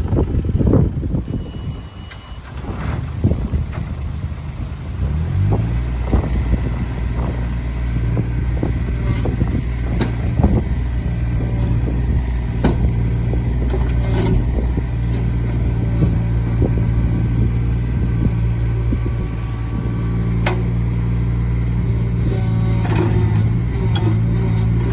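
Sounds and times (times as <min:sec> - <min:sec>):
excavator diesel engine running: 0:00.0 - 0:24.9
machine knocks and clanks: 0:12.5 - 0:16.2.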